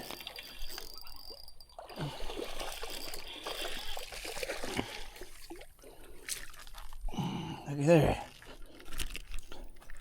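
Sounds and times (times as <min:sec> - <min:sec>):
river water trickling and splashing: 0:00.0 - 0:07.2.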